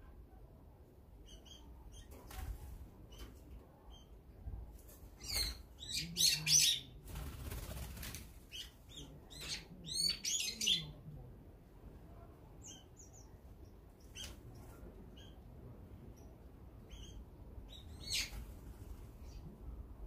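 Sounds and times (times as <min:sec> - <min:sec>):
faint bird chirps: 0:01.2 - 0:02.2.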